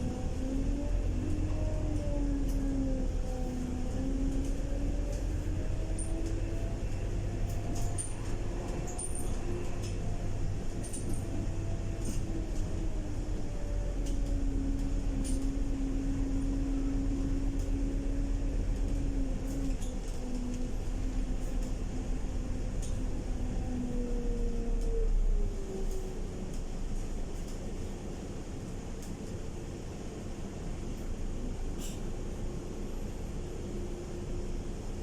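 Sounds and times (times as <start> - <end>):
bus drivetrain droning: 0.0 - 35.0.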